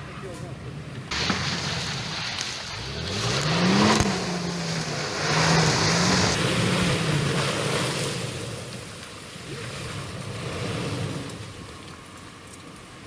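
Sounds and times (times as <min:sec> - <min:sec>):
suv engine revving: 0:00.8 - 0:12.0
steady rushing noise: 0:01.1 - 0:09.2.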